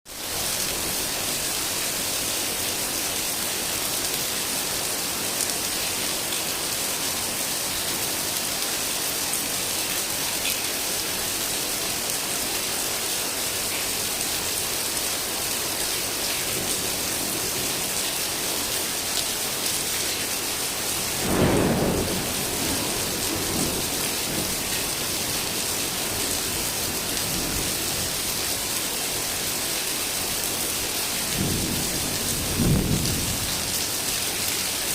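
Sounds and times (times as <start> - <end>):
heavy rain falling: 0.1 - 34.9
thunder rumbling: 21.0 - 26.5, 31.3 - 33.8.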